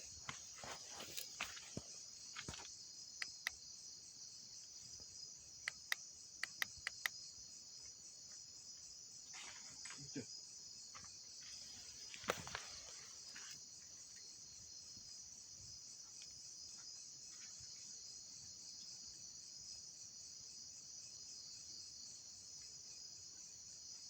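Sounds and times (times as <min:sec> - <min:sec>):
crickets chirping: 0:00.0 - 0:24.0
soft rustles: 0:00.2 - 0:02.6
sharp clicks: 0:03.2 - 0:03.6, 0:05.6 - 0:07.1.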